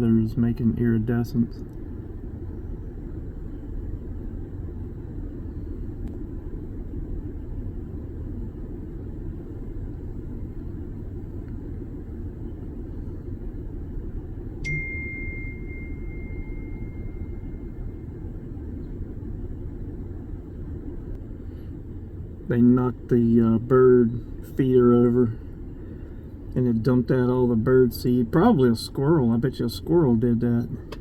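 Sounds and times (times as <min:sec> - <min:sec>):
low rumble: 0:01.4 - 0:23.1
high ringing tone: 0:14.6 - 0:18.4.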